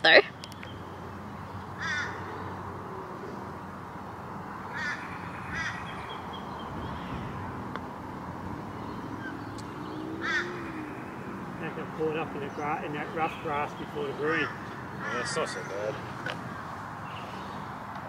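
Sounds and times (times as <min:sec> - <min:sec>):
bird harsh calls: 0:01.5 - 0:03.4, 0:04.4 - 0:07.6, 0:08.6 - 0:17.7.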